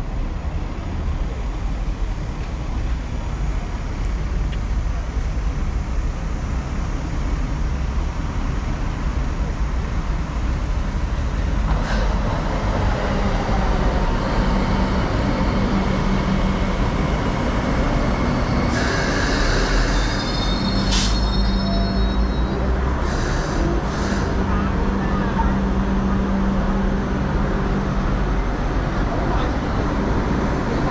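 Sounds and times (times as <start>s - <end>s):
train rumbling on track: 0.0s - 30.9s.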